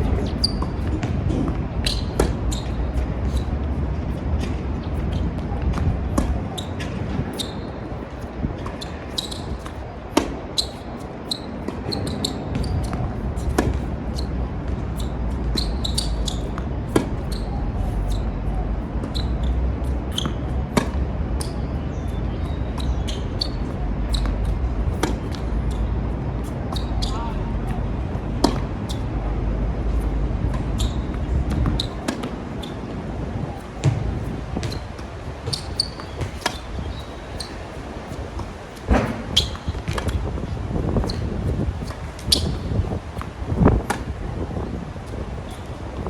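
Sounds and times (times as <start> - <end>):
wind rumble on microphone: 0.0 - 46.0
tennis ball racket hits: 33.6 - 40.2.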